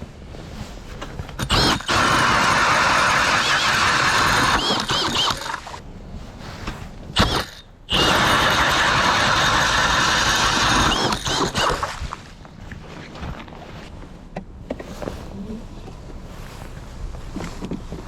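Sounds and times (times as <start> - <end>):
ice auger grinding: 1.4 - 5.8, 7.2 - 12.3
high squeaks from cutting: 3.4 - 5.7.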